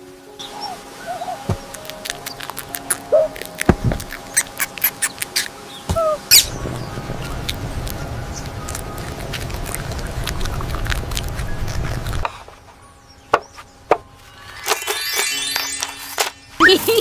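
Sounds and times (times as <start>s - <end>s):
steady low rumble: 5.6s - 13.2s.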